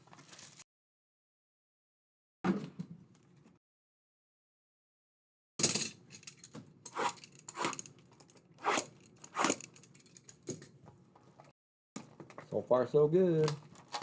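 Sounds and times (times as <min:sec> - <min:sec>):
card pack wrappers tearing: 0:13.4 - 0:14.0.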